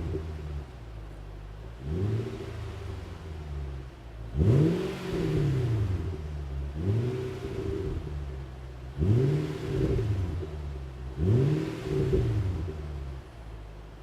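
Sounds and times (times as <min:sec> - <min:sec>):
car engine idling: 0:00.0 - 0:14.0
engine revving: 0:01.8 - 0:13.2.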